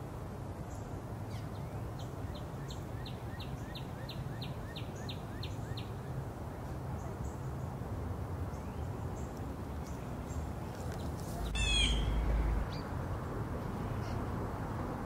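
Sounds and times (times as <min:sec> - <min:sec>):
songbird calling high notes: 0:11.5 - 0:12.2.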